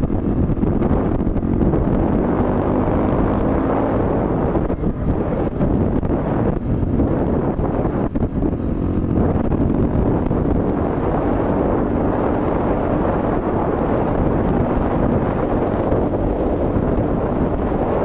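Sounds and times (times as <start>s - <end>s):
dirt bike engine running: 0.0s - 18.0s
wind buffeting microphone: 0.0s - 18.0s.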